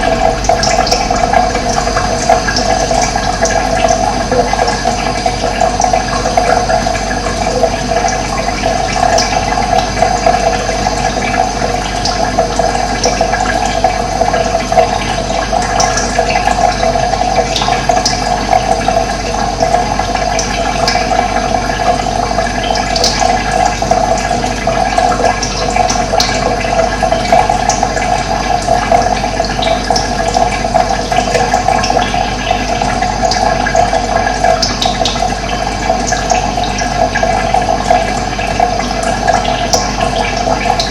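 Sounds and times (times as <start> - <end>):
water rushing: 0.0 - 17.8.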